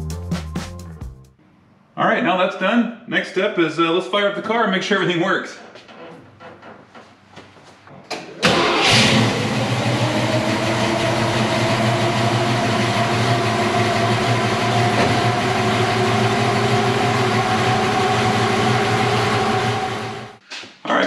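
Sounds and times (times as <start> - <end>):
car engine starting and idling: 8.4 - 20.4.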